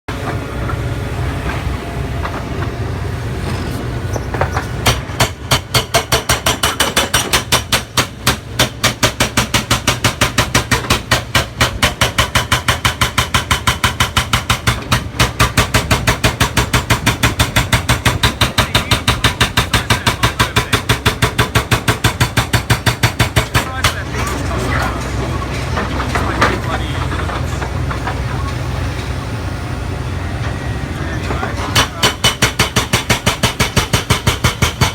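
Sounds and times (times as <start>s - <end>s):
hydraulic breaker hammering concrete: 4.3s - 28.4s, 31.3s - 34.9s.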